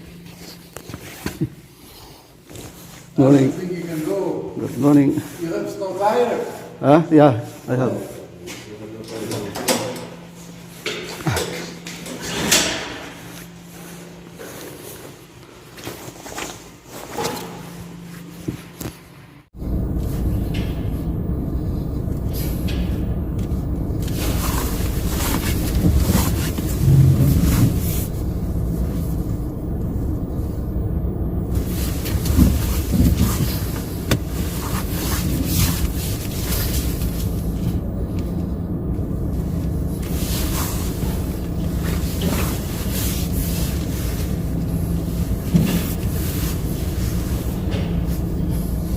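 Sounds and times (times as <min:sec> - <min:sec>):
car engine and road rumble: 0:19.5 - 0:48.9.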